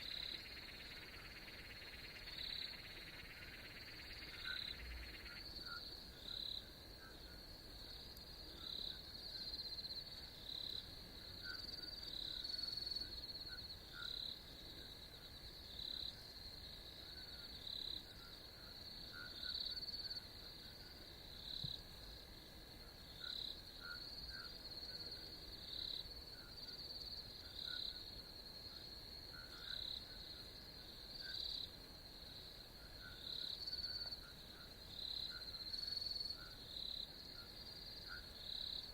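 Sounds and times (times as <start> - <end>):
short low frog calls: 0.0 - 7.4
insects trilling: 0.0 - 38.9.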